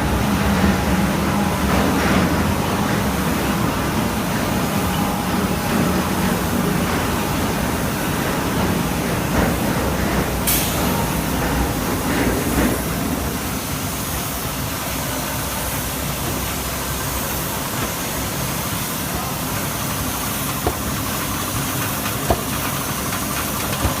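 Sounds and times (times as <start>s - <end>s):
brick-making machine running: 0.0s - 24.0s
sharp knocks: 20.6s - 20.9s.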